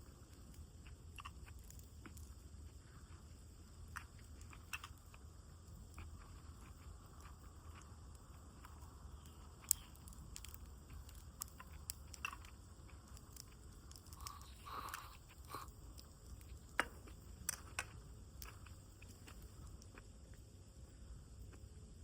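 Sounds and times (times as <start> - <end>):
campfire crackling: 1.3 - 4.8, 8.0 - 20.2
sharp fire snaps: 8.1 - 20.0.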